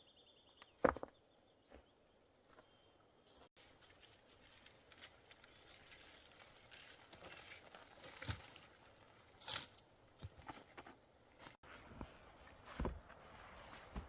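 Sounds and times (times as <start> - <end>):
rustling and crunching: 3.3 - 14.0.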